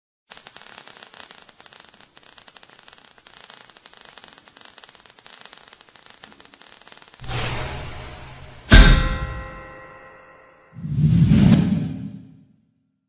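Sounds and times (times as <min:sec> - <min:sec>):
crackling static: 0:00.3 - 0:07.3.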